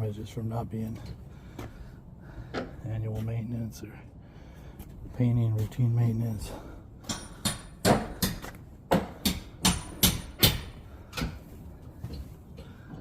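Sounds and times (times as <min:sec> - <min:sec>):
sharp knocks on wood: 0:07.1 - 0:11.4.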